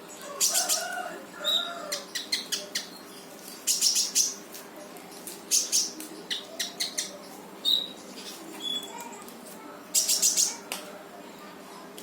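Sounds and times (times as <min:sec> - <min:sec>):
songbird rattling calls: 0:03.6 - 0:04.4.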